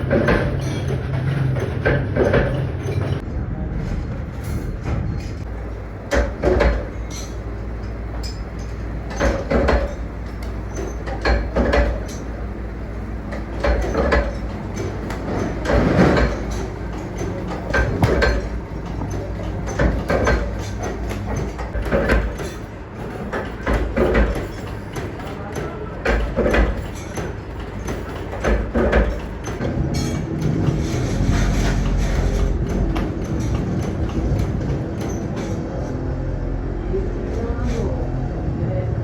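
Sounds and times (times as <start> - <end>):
machinery humming: 5.4 - 22.0
clattering knock: 13.6 - 22.4.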